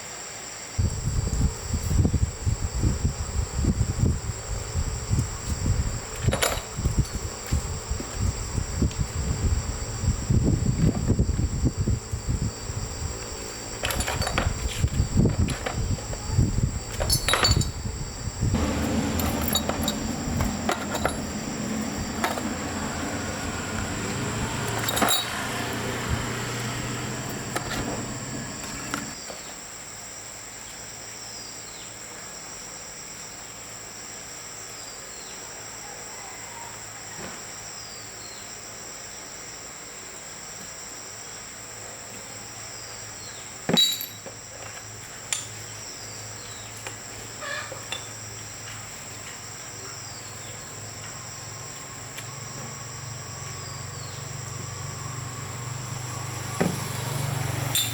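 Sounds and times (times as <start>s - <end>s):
crickets trilling: 0.0s - 57.9s
metal clinks and knocks: 6.2s - 7.3s, 13.8s - 15.8s, 16.9s - 17.9s, 18.6s - 22.5s, 24.8s - 25.4s, 43.7s - 44.4s, 57.7s - 57.9s.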